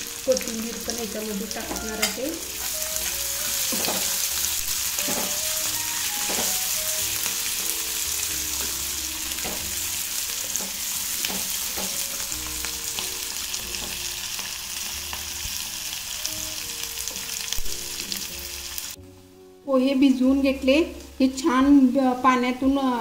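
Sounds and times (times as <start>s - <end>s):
food sizzling in hot oil: 0.0s - 19.0s
faint melodic music: 0.0s - 23.0s
spatula scraping and knocking pan: 1.7s - 4.2s, 5.0s - 6.6s, 10.4s - 12.2s.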